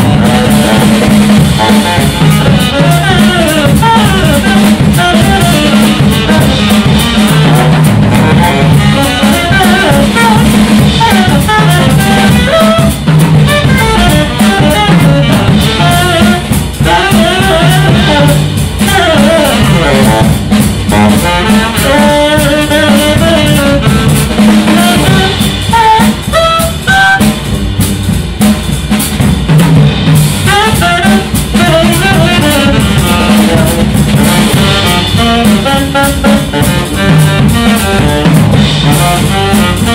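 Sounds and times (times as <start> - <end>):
saxophone melody: 0.0 - 27.7, 30.4 - 39.9
double bass: 0.0 - 39.9
drum kit with rimshots: 0.0 - 39.9.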